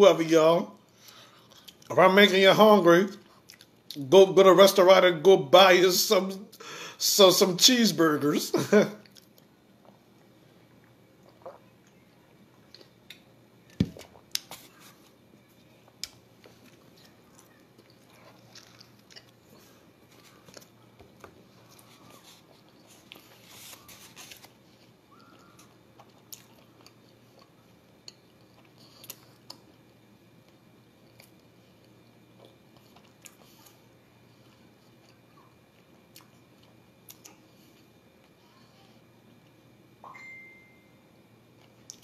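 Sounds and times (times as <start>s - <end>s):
person chewing food: 1.0s - 1.9s, 3.2s - 4.0s, 9.0s - 15.2s, 15.8s - 38.4s.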